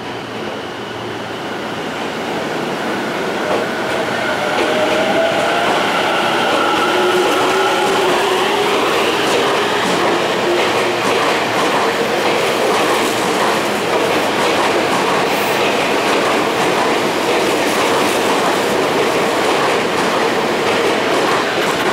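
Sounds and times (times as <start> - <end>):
train wheels rumbling on rail: 0.0 - 21.9.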